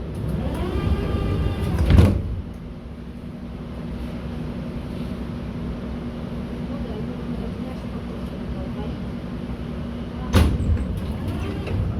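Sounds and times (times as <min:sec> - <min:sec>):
sliding doors closing with whine: 0:00.0 - 0:02.6, 0:10.3 - 0:11.9
low hum of train car: 0:00.0 - 0:11.9.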